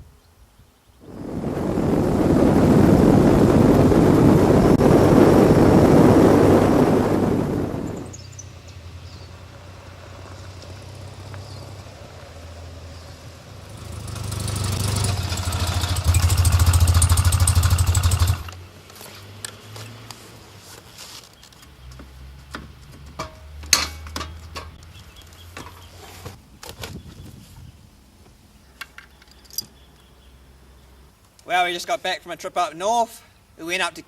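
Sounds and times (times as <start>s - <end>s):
motorcycle engine idling: 13.7s - 18.6s
clicks and knocks: 22.5s - 24.9s.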